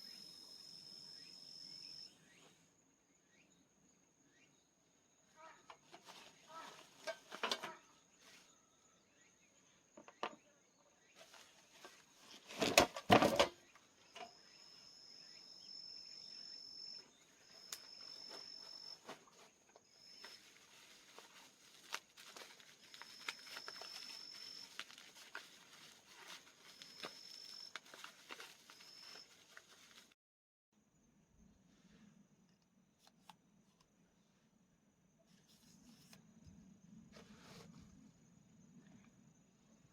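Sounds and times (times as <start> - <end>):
night insects trilling: 14.1 - 19.2, 19.9 - 29.4.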